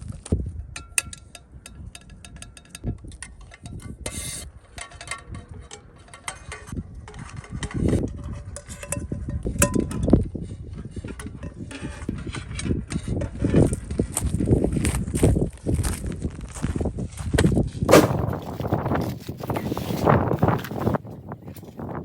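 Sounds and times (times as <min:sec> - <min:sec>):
small metallic clicks and clinks: 0:00.8 - 0:04.0.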